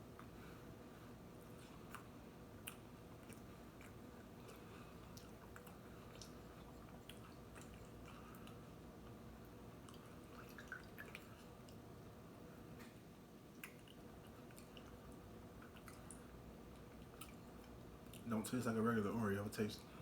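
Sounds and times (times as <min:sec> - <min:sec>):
faint chewing: 0:00.0 - 0:11.9, 0:12.8 - 0:18.3
soft mouth clicks: 0:13.6 - 0:15.0.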